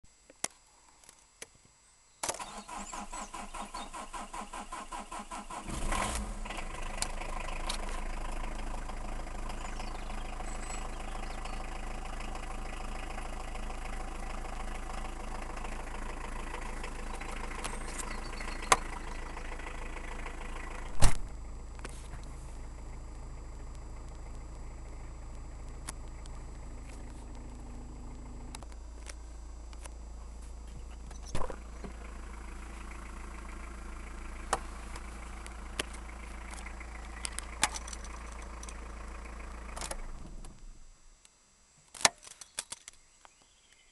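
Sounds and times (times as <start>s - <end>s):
starter motor cranking: 2.3s - 8.1s
diesel engine idling: 2.5s - 40.9s.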